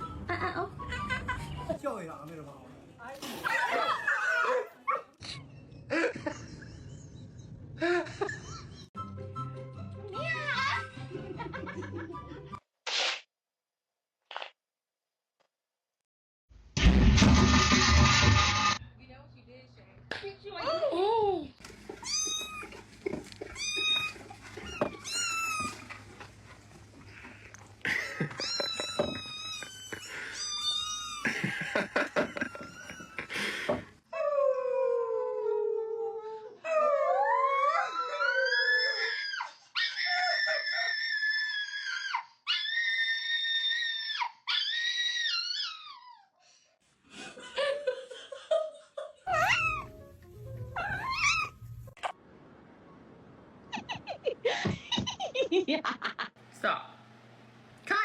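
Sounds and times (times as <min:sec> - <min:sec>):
cats meowing: 0:21.9 - 0:26.1, 0:28.2 - 0:31.3, 0:32.3 - 0:33.3, 0:49.3 - 0:50.0, 0:50.7 - 0:51.8.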